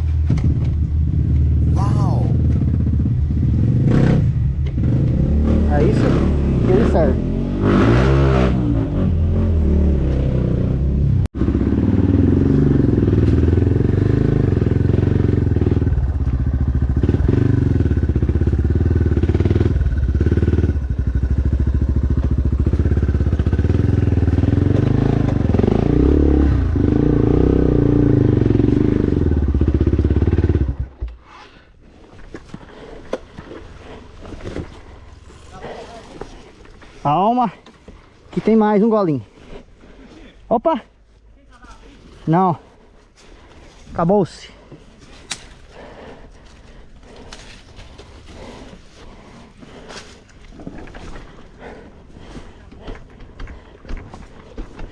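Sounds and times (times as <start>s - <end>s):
dirt bike engine revving: 0.3s - 30.9s.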